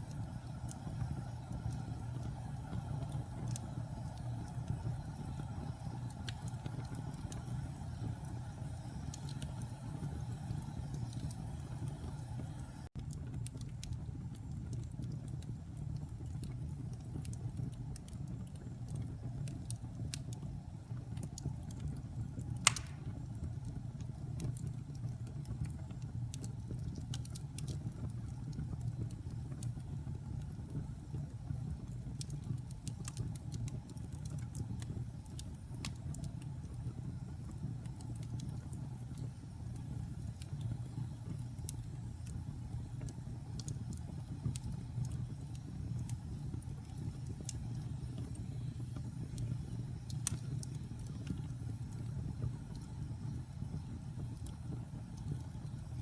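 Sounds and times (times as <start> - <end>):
fire crackling: 0.0 - 56.0
fire flames rumbling: 0.0 - 56.0
loud sharp fire pop: 22.6 - 23.2.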